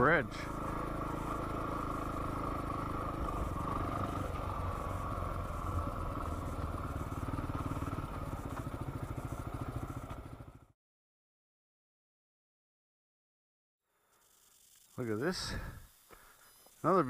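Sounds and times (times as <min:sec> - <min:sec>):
motorcycle engine running: 0:00.0 - 0:10.8, 0:14.2 - 0:17.0.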